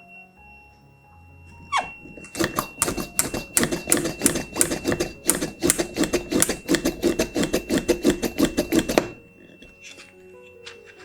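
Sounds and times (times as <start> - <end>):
high-pitched electronic buzzer tone: 1.4 - 10.1
hand vacuum pump clicking: 1.6 - 11.0.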